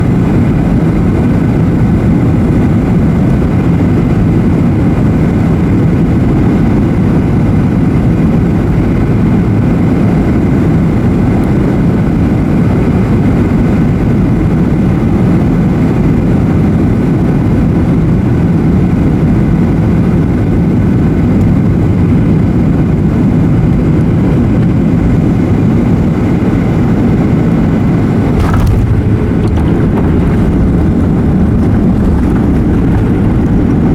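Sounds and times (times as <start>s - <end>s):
jet engine whine: 0.0s - 33.9s
wind buffeting microphone: 0.0s - 33.9s
short sharp crack: 28.3s - 33.7s.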